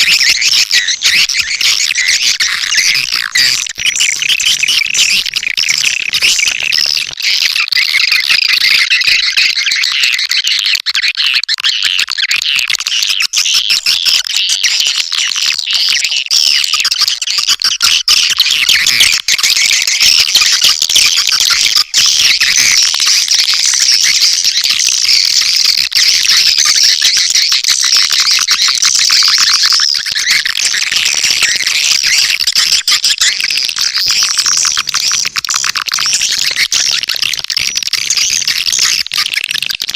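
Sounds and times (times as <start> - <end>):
swiftlets twittering chorus: 0.0 - 6.8, 13.3 - 39.8.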